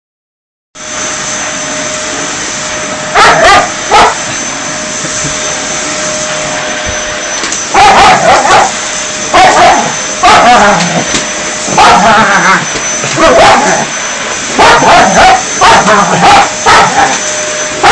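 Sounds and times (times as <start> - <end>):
vacuum cleaner drone: 0.8 - 17.9
dog barking: 3.1 - 4.3, 7.8 - 10.8, 11.7 - 12.3, 13.2 - 13.9, 14.6 - 17.2.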